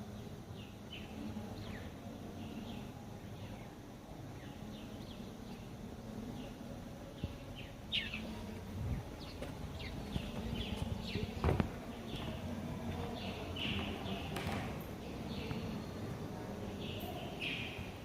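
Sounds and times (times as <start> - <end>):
low background rumble: 0.0 - 14.2
birds chirping: 0.0 - 18.0
dull thumps: 9.4 - 12.4.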